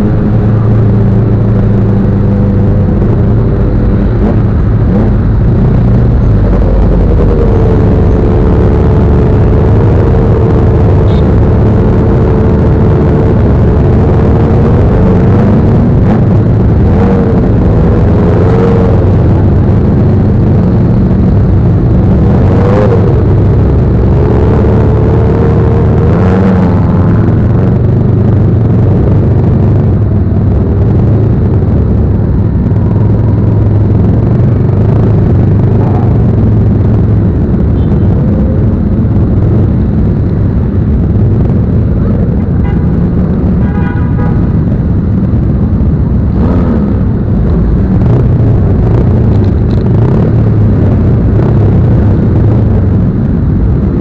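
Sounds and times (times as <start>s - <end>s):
motorcycle engine rumbling: 0.0s - 54.0s
vehicle horn: 42.5s - 43.0s, 43.6s - 44.6s.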